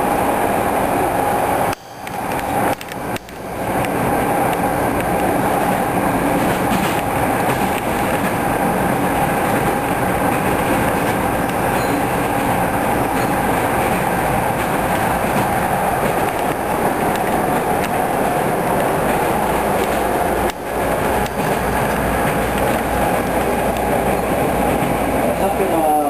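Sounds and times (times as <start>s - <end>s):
train rumbling: 0.0s - 26.0s
wheels clattering over rails: 2.1s - 25.6s.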